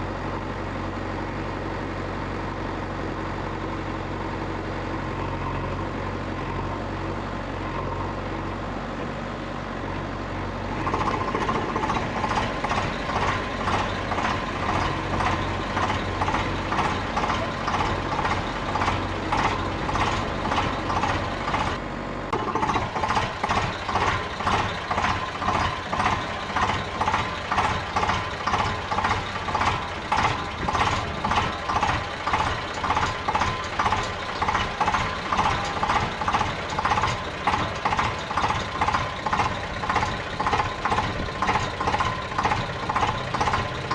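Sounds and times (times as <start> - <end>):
low motor hum: 10.6 - 43.9.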